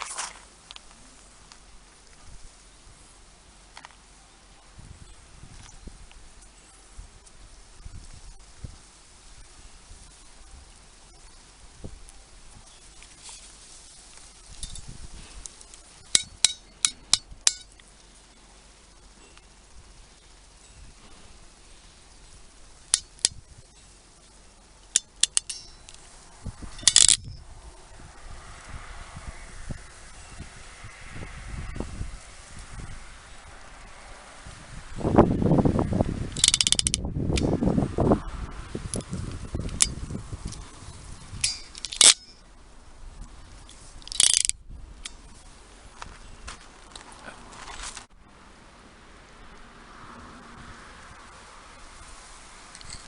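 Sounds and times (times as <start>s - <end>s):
hand tool metallic clicks: 14.5s - 17.9s, 22.9s - 23.4s, 24.9s - 26.1s, 26.7s - 27.4s, 36.3s - 37.5s, 39.0s - 40.6s, 41.4s - 42.4s, 43.7s - 45.2s.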